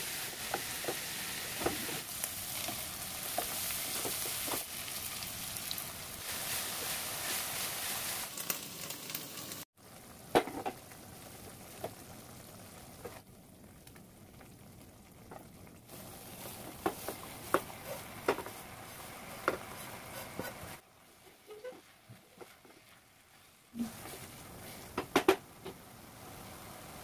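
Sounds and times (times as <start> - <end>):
food sizzling in a pan: 0.0 - 27.0
wooden spatula knocking a pan: 16.8 - 18.6.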